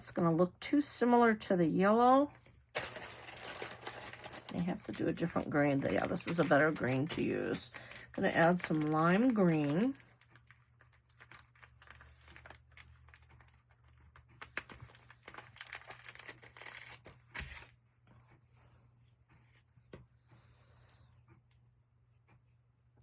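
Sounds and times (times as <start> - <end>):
wool fibres tearing and rustling: 2.8 - 17.7.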